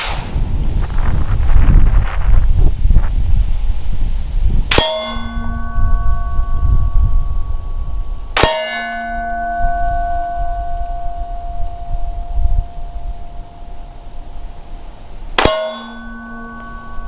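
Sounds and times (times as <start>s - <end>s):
bullet hitting steel plate: 4.7s - 6.4s, 8.4s - 11.4s, 15.4s - 17.0s.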